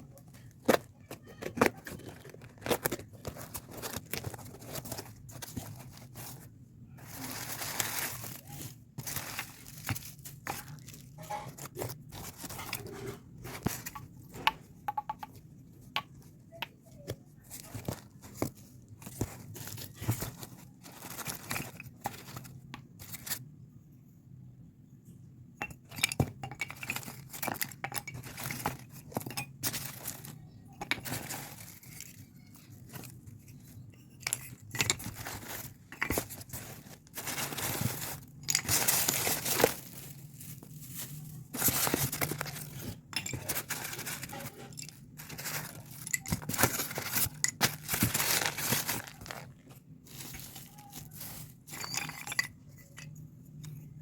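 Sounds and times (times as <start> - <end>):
packaging tearing and crinkling: 35.0 - 51.5.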